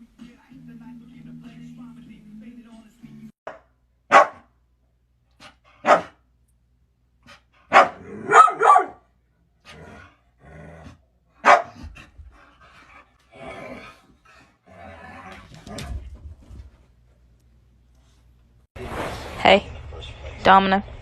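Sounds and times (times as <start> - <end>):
dog barking: 3.5 - 4.5, 5.8 - 6.2, 7.7 - 9.1, 11.4 - 11.9.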